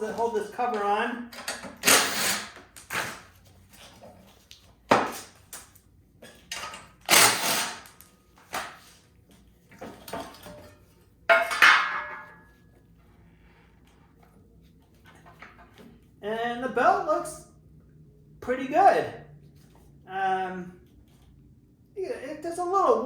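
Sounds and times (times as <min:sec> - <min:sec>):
tools and metal parts clattering: 0:00.1 - 0:03.0, 0:06.2 - 0:08.8, 0:09.7 - 0:12.6.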